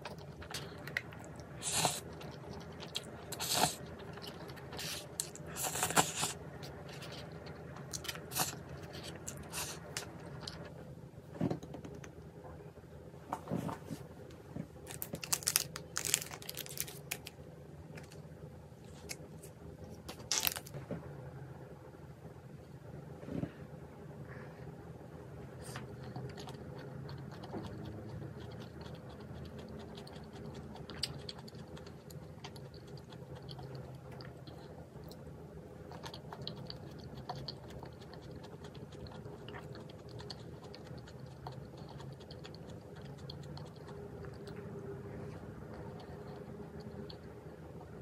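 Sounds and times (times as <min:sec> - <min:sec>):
chewing with clicks and crackles: 0:00.0 - 0:10.8, 0:25.6 - 0:48.0
faint steady hum: 0:00.0 - 0:48.0.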